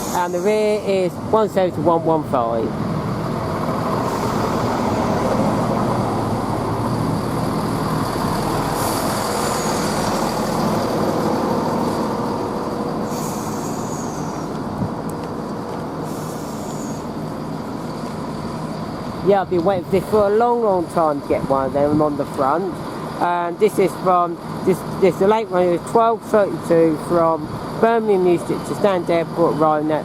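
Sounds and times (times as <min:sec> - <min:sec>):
diesel train engines running: 0:00.0 - 0:30.0
short high hisses: 0:04.0 - 0:04.9, 0:08.7 - 0:10.4, 0:13.0 - 0:14.6, 0:16.0 - 0:17.1.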